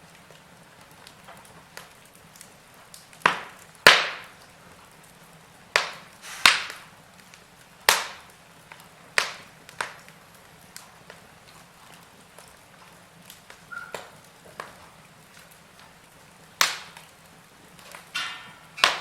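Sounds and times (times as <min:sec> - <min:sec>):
faint fire crackling: 0:00.0 - 0:19.0
sharp loud wood pops: 0:03.2 - 0:04.4, 0:05.8 - 0:06.9, 0:07.9 - 0:08.3, 0:09.2 - 0:10.0, 0:16.6 - 0:17.1, 0:17.9 - 0:19.0.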